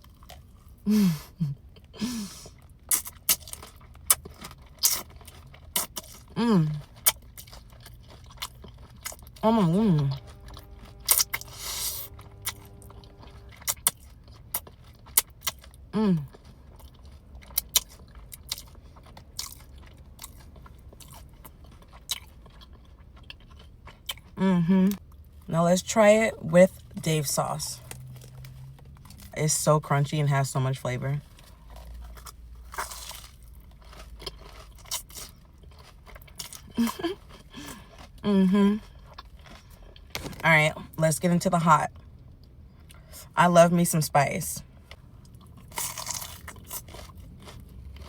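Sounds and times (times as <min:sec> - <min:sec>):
crunchy chewing: 0:00.0 - 0:00.8, 0:01.6 - 0:25.1, 0:31.2 - 0:40.5, 0:44.8 - 0:48.0
person humming: 0:06.4 - 0:06.8, 0:09.4 - 0:10.2, 0:16.0 - 0:16.3, 0:24.4 - 0:25.0, 0:38.2 - 0:38.8.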